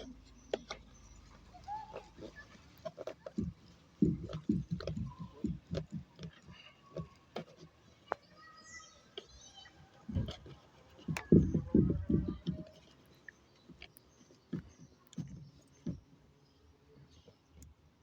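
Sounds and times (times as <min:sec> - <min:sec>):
shock absorber knocking: 0:01.8 - 0:08.2, 0:10.1 - 0:12.9.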